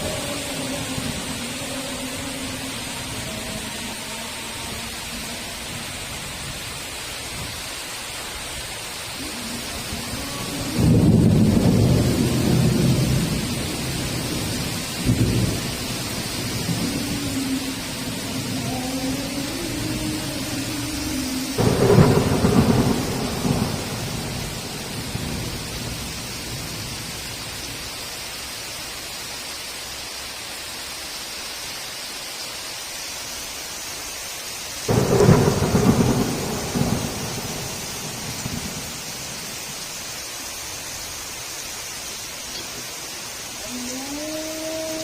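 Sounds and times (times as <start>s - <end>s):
heavy rain falling: 0.0s - 45.0s
thunder claps rumbling: 9.2s - 27.2s, 34.9s - 39.9s.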